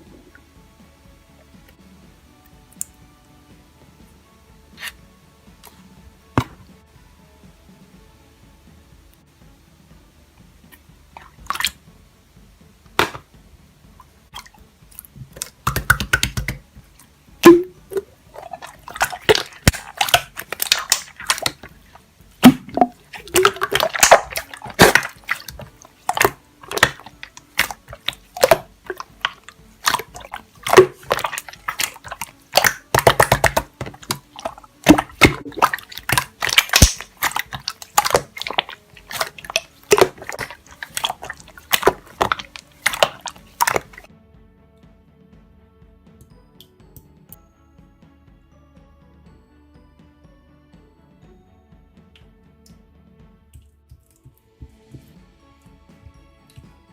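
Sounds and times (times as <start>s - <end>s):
slime squishing wet clicks: 11.2s - 11.8s, 13.0s - 13.2s, 14.4s - 16.6s, 17.4s - 44.1s.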